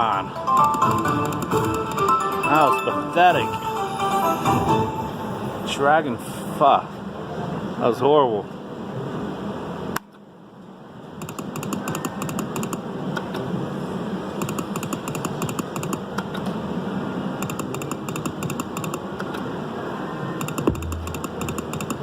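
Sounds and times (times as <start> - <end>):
slot machine electronic ticking: 0.0 - 5.2, 20.6 - 22.0.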